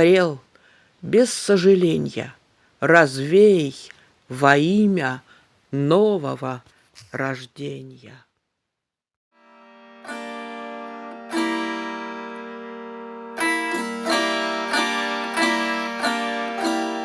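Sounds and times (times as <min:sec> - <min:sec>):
plucked psaltery: 0:09.4 - 0:17.0.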